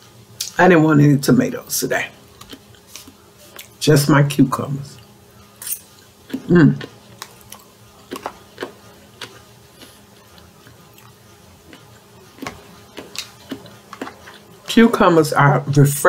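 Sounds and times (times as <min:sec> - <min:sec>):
person chewing crisp cucumber: 0:02.3 - 0:03.8, 0:05.0 - 0:14.8.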